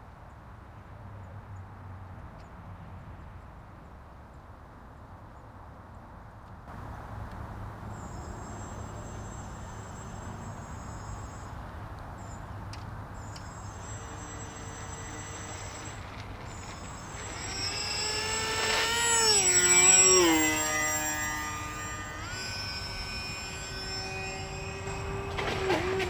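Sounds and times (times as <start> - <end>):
model airplane motor whining: 6.7 - 26.0.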